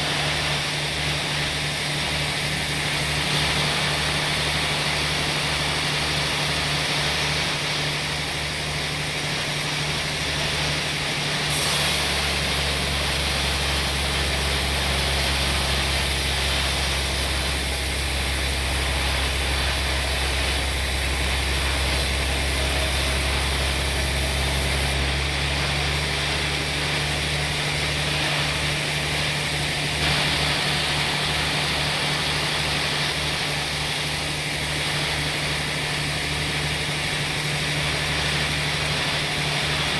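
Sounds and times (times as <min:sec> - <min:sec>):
motor low hum: 0:00.0 - 0:39.9
saw hissing through wood: 0:11.4 - 0:25.0.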